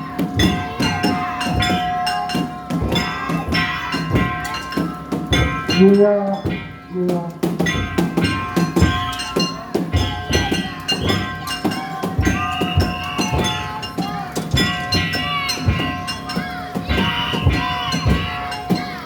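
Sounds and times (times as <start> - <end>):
metal bells ringing: 0.0 - 19.0
taiko drums beating fast: 0.0 - 19.0.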